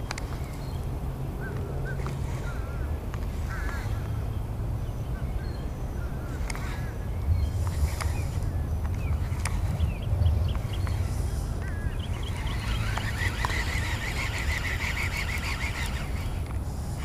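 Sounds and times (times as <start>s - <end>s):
low steady rumble: 0.0s - 17.0s
bird chirping: 3.8s - 16.4s.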